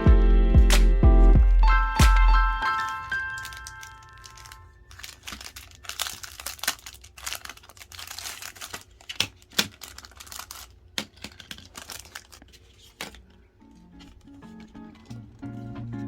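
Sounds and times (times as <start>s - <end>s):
plastic packaging crinkling: 2.6s - 15.4s.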